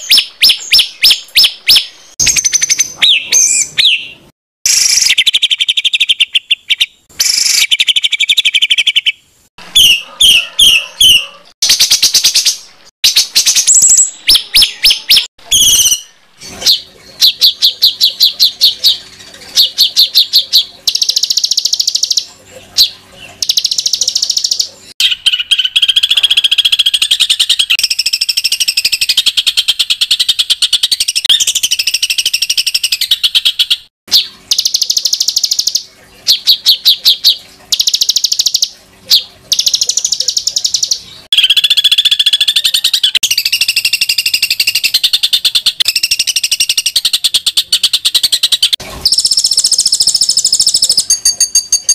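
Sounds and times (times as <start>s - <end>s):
songbird rattling trills: 48.2s - 51.9s.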